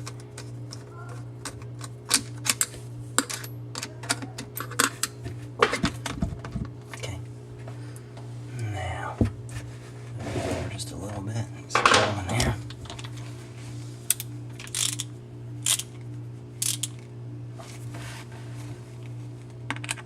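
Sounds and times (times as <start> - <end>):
screwdriver and metal parts clicking: 14.1 - 16.0, 16.6 - 17.0.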